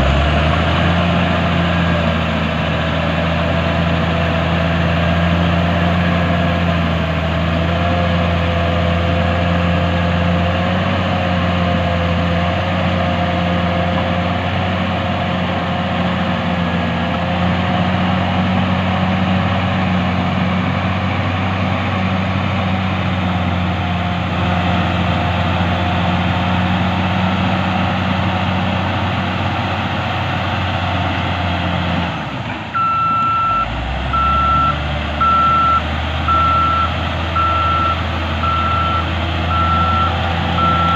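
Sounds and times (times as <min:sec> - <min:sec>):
diesel engine of heavy machine: 0:00.0 - 0:40.9
reversing alarm beeping: 0:32.8 - 0:40.9.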